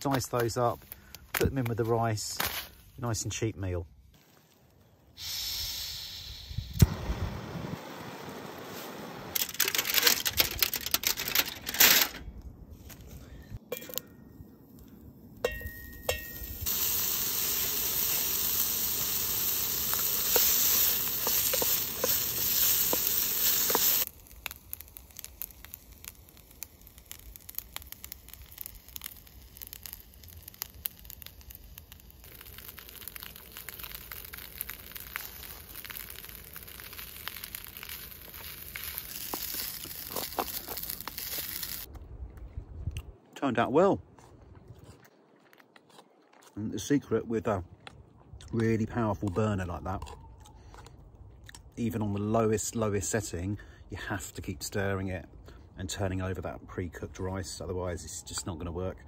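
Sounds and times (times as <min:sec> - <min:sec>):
sausages sizzling in a pan: 0:16.1 - 0:41.9.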